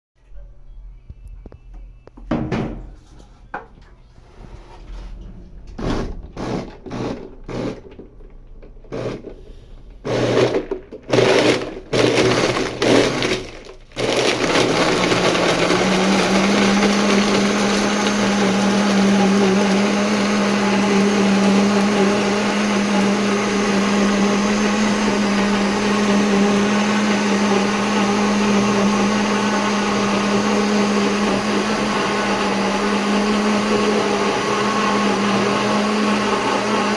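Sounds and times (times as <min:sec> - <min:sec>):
blender motor running: 0:06.4 - 0:07.8, 0:08.9 - 0:09.2, 0:10.0 - 0:36.9.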